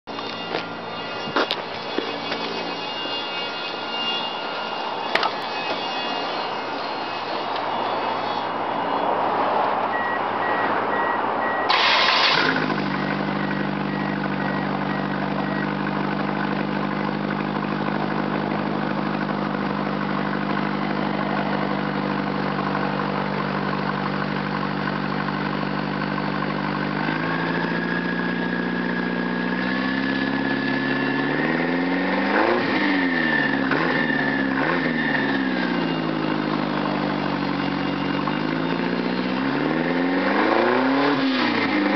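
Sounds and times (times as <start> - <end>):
car engine revving: 9.9 - 41.9
car engine starting and idling: 9.9 - 41.9.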